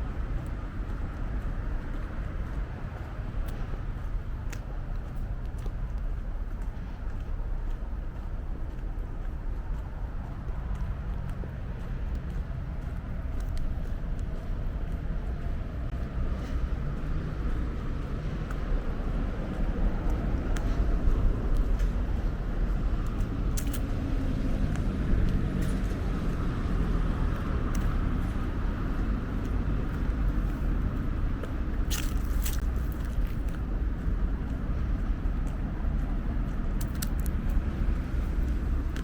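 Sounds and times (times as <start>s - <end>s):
road traffic rumble: 0.0s - 39.0s
sharp clicks: 23.6s - 24.0s, 36.8s - 37.7s.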